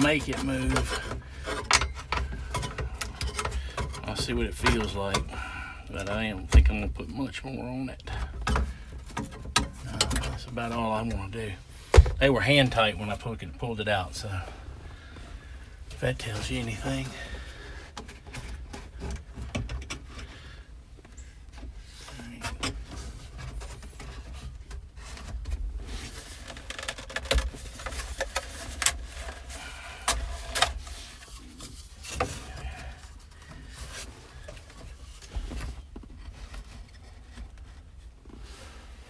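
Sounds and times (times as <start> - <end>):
steady low rumble: 11.6 - 13.6.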